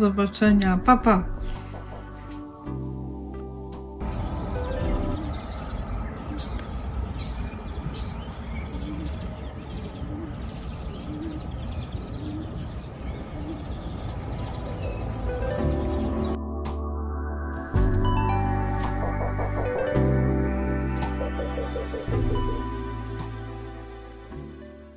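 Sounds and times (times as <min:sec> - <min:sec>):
birds chirping: 0:04.0 - 0:16.4, 0:19.0 - 0:23.6.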